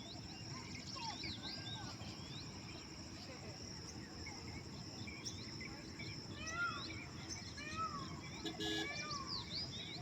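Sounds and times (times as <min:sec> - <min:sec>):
birds whistling calls: 0:05.0 - 0:10.0.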